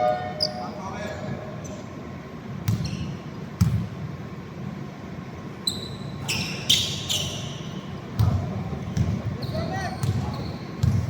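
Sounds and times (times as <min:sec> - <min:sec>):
sneaker squeaks: 0:00.4 - 0:00.8, 0:02.6 - 0:03.5, 0:05.6 - 0:11.0
basketball bouncing on hardwood: 0:08.2 - 0:09.3, 0:10.0 - 0:11.0.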